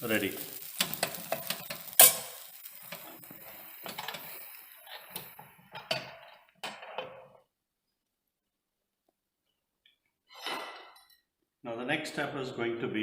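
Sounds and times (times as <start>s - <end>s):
utensils clinking against a pan: 0.6s - 3.2s, 3.8s - 6.8s.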